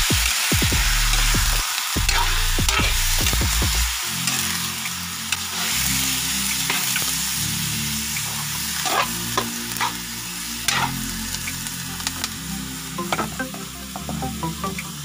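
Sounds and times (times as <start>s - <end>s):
meat sizzling in a wok: 0.1s - 13.0s
metal spatula scraping a pan: 8.8s - 10.0s, 10.7s - 11.0s.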